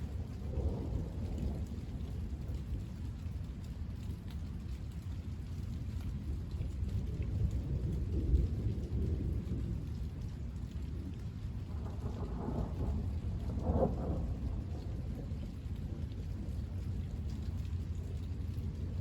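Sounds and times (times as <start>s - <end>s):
steady rain: 0.0s - 19.0s
thunder rumbling: 11.6s - 17.1s.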